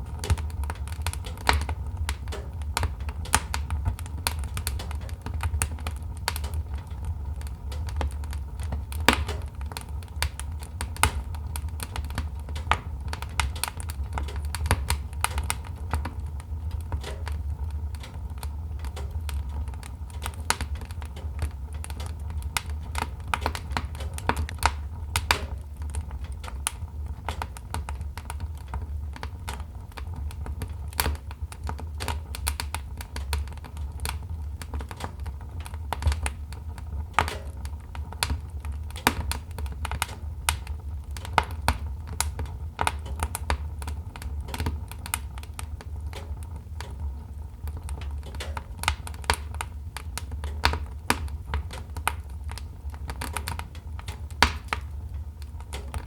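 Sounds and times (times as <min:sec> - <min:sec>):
fire pops and snaps: 0:00.0 - 0:56.0.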